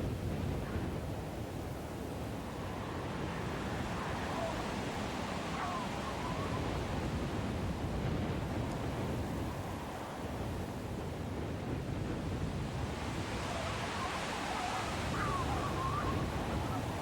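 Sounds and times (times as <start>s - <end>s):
snowstorm wind rushing: 0.0s - 17.0s
faint wavering whistle: 13.5s - 17.0s.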